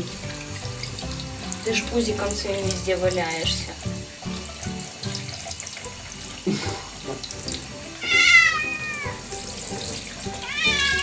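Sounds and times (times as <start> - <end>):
shower spray running: 0.0 - 11.0
cat meowing: 8.0 - 9.3, 10.4 - 11.0.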